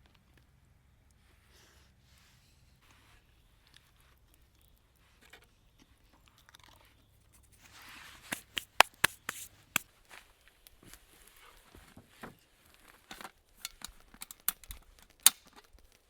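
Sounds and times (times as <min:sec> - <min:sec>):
sharp crunches of chewing: 0:03.7 - 0:09.5.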